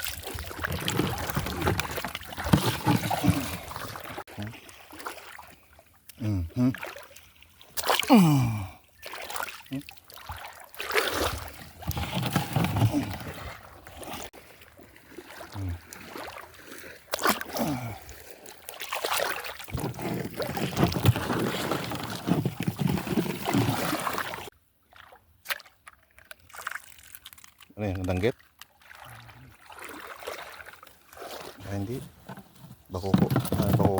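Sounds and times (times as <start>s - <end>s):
water splashing and sloshing: 0.0s - 33.9s.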